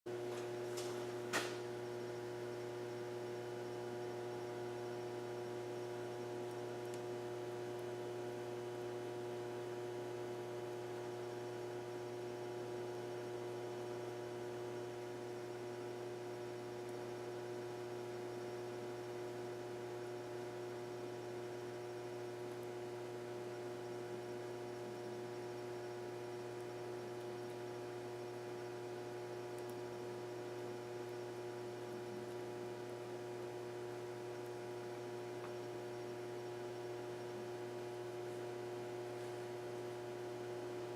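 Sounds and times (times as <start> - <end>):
steady multi-pitch hum: 0.1 - 40.9.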